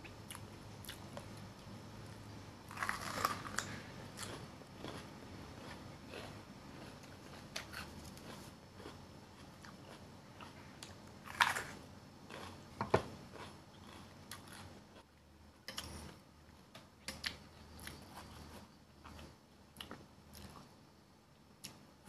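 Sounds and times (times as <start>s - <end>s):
crunching bites into pepper: 2.7s - 5.0s
chewing: 2.7s - 12.6s, 13.3s - 15.1s.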